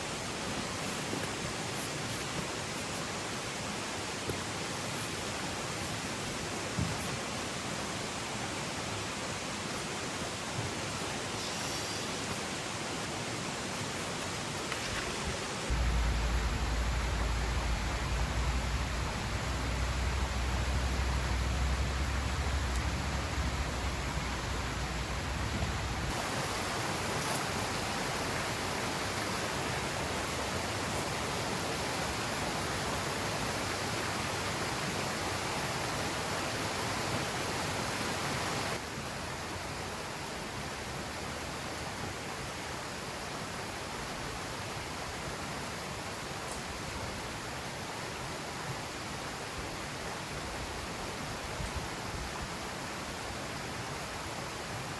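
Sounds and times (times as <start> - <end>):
mountain stream rushing: 0.0 - 54.9
deep low rumble: 15.7 - 26.1.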